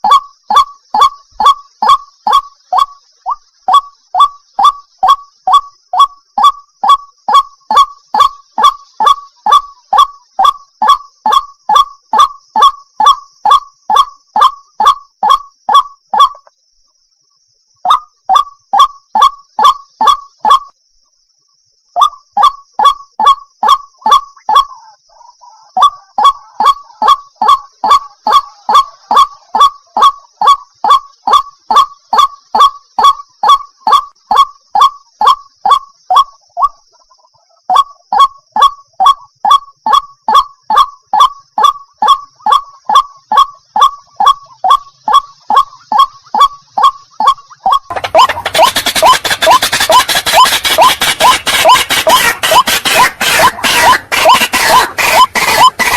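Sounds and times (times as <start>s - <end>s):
water hen honking calls: 44.8s - 55.9s.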